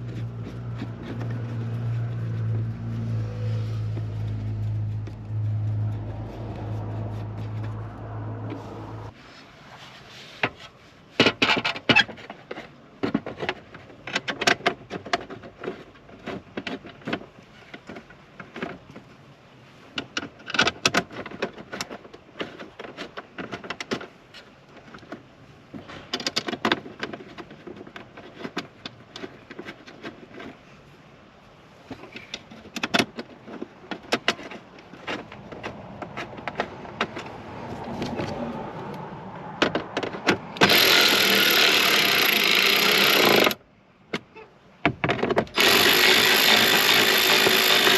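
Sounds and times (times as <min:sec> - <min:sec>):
clicks knocks and rattles: 0:11.2 - 0:19.1, 0:19.9 - 0:30.6, 0:31.8 - 0:38.4, 0:39.4 - 0:47.9.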